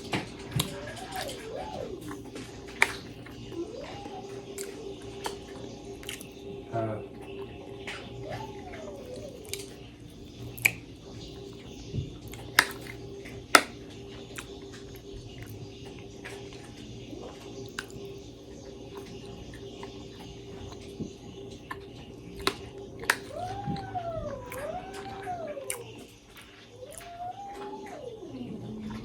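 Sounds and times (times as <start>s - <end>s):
eating clicks and smacks: 0.0s - 29.0s
steady hum: 0.0s - 29.0s
cat meowing: 3.5s - 5.0s, 23.2s - 26.1s, 26.7s - 29.0s.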